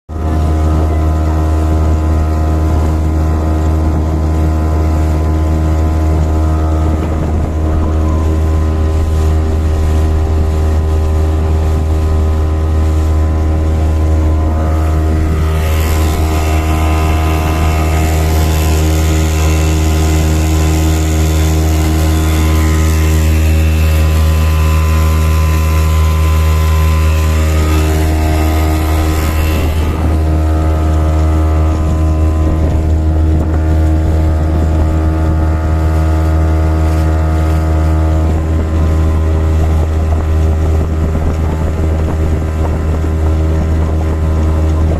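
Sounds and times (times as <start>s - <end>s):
outboard motor running: 0.0s - 44.9s.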